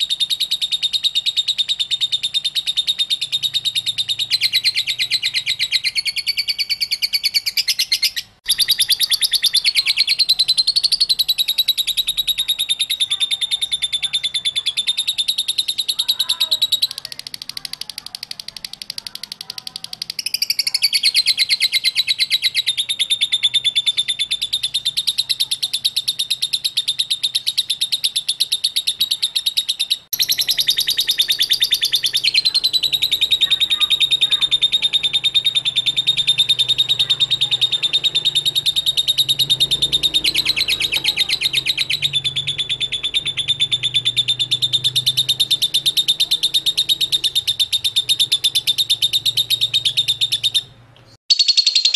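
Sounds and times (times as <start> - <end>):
lovebird chattering trill: 0.0 - 51.9.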